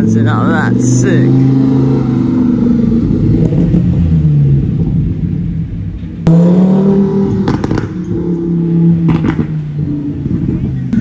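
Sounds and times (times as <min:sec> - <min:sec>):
sports car engine revving: 0:00.0 - 0:11.0
sharp exhaust cracks: 0:06.3 - 0:11.0.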